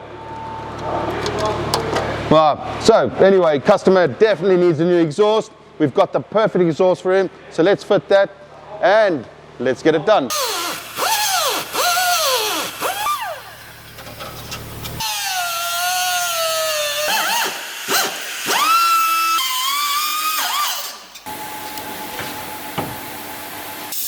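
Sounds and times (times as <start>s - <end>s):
power tool motor whining: 10.3s - 21.6s.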